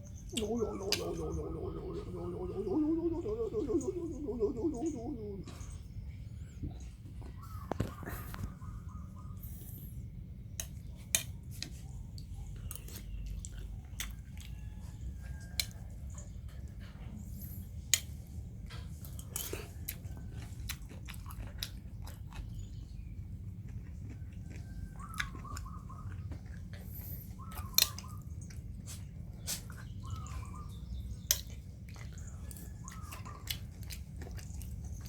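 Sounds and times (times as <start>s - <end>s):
puppies chewing food: 0.0s - 8.6s, 10.8s - 35.0s
steady low rumble: 0.1s - 10.6s.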